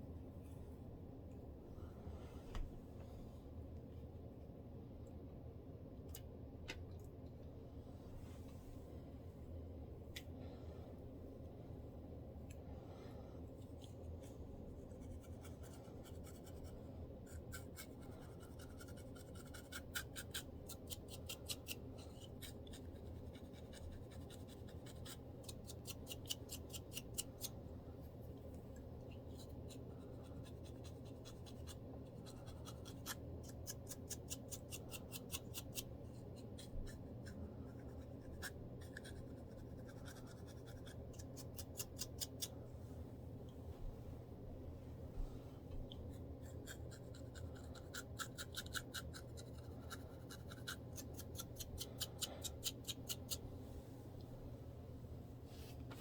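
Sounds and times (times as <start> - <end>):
low steady hum: 0.0 - 56.0
fingers scratching scalp: 14.9 - 27.6, 29.2 - 42.5, 46.2 - 53.4.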